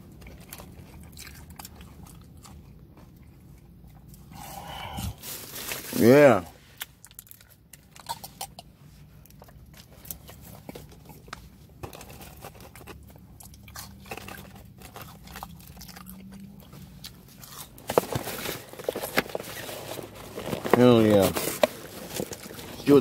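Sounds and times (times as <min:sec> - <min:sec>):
person eating crunchy fries: 0:00.0 - 0:23.0
paper bag crinkling: 0:05.1 - 0:06.5, 0:17.7 - 0:23.0.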